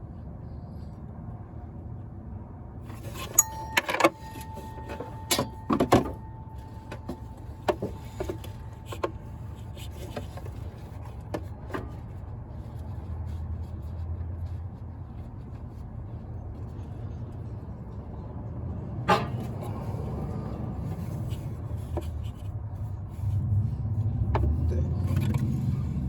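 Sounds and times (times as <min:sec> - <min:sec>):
low hum: 0:00.0 - 0:21.4
metal tools clinking and knocking: 0:02.9 - 0:09.0.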